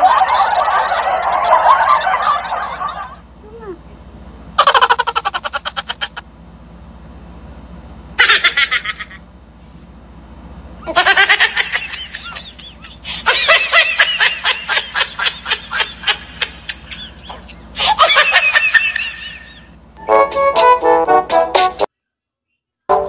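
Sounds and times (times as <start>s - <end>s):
person giggling: 4.6s - 6.2s, 10.9s - 19.7s.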